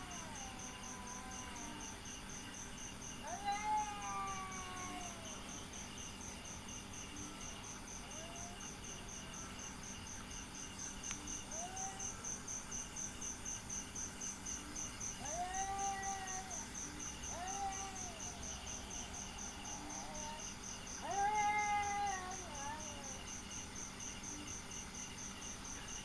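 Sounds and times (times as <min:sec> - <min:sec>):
cat meowing: 0:00.0 - 0:01.8, 0:03.2 - 0:05.4, 0:15.2 - 0:16.7, 0:17.3 - 0:18.4, 0:19.7 - 0:20.4, 0:21.0 - 0:23.2
insect chirping: 0:00.0 - 0:26.0.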